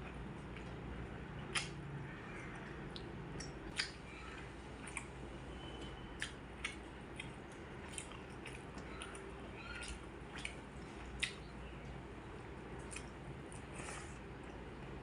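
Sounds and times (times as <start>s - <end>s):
chewing and wet mouth sounds: 0.0s - 15.0s
low background hum: 0.0s - 15.0s
sharp mouth smacks: 1.5s - 1.8s.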